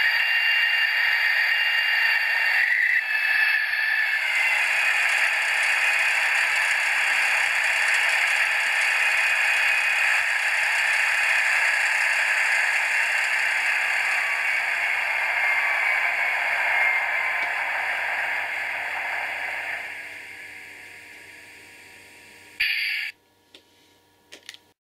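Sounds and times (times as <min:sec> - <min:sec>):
model locomotive rattling whir: 0:00.0 - 0:23.1.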